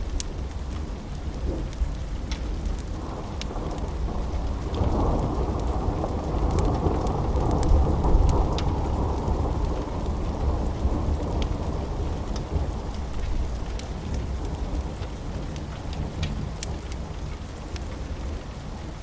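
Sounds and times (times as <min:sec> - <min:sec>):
steady rain: 0:00.0 - 0:19.0
thunder rumbling: 0:02.9 - 0:15.4.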